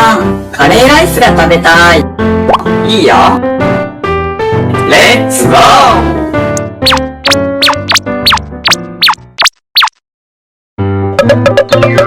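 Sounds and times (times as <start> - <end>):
cartoon falling zips: 6.8 - 10.0
children's background music: 11.1 - 12.0.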